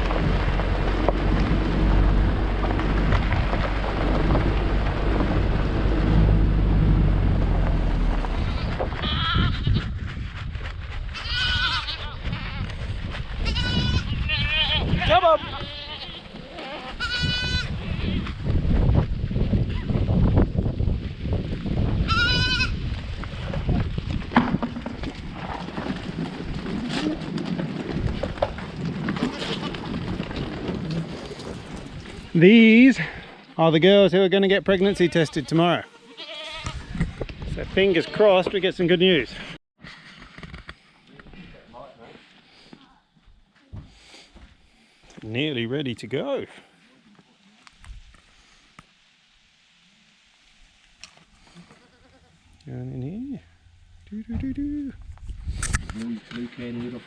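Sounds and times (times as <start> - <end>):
vehicle engine running: 0.0 - 8.6
low rumble: 0.0 - 11.2
goat bleating: 8.2 - 9.9, 11.2 - 12.7, 13.4 - 18.3, 22.0 - 22.8, 34.8 - 36.9, 37.8 - 38.5, 51.6 - 52.4.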